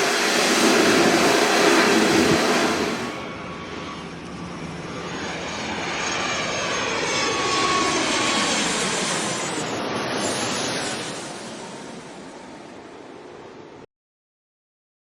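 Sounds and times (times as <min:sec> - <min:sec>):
thin steady whine: 0:00.0 - 0:05.0
jet engines passing by: 0:00.0 - 0:13.8.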